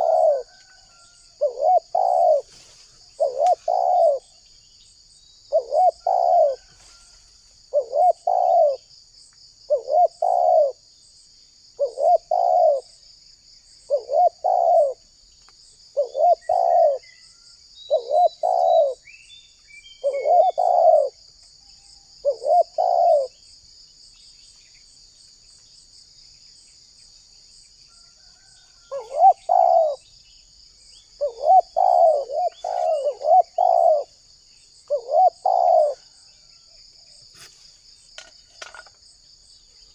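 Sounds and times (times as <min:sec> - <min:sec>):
dove cooing: 0:00.0 - 0:04.4, 0:05.5 - 0:06.9, 0:07.6 - 0:08.9, 0:09.7 - 0:10.8, 0:11.8 - 0:12.9, 0:13.9 - 0:15.0, 0:16.0 - 0:17.1, 0:17.9 - 0:19.0, 0:20.0 - 0:21.2, 0:22.2 - 0:23.4, 0:28.4 - 0:30.0, 0:31.2 - 0:34.2, 0:34.8 - 0:36.3
high insect drone: 0:00.0 - 0:39.9.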